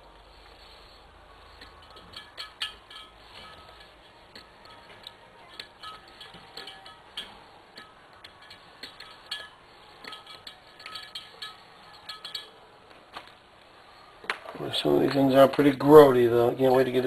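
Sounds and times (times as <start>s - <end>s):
metallic clinks of steel parts: 1.4s - 13.4s.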